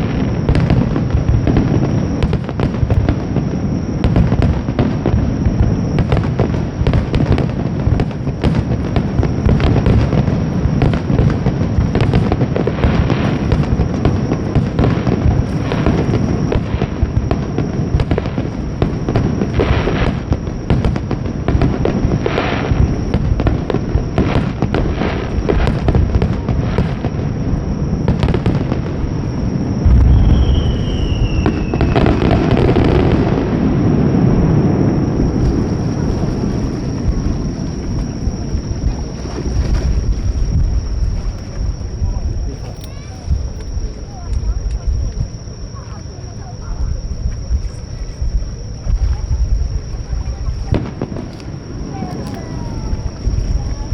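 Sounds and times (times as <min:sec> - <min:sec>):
heavy firework boom: 0:00.0 - 0:45.7, 0:46.6 - 0:53.9
fireworks bursts and crackling: 0:00.0 - 0:53.9
falling whistle: 0:29.2 - 0:36.4.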